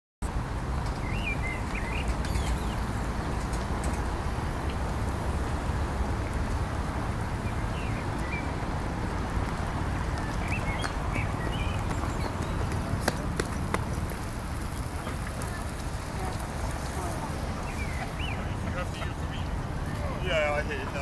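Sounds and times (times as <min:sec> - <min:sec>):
low rumble of city traffic: 0:00.2 - 0:21.0
songbird chirping: 0:00.7 - 0:04.1, 0:07.2 - 0:08.7, 0:09.5 - 0:14.0, 0:14.7 - 0:20.8.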